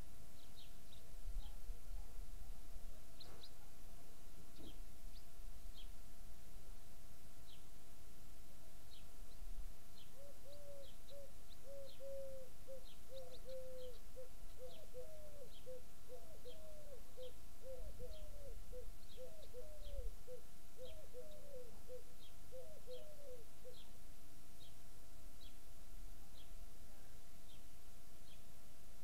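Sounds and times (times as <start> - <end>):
faint high bird chirps: 10.0 - 23.9
bird cooing notes: 10.2 - 23.8.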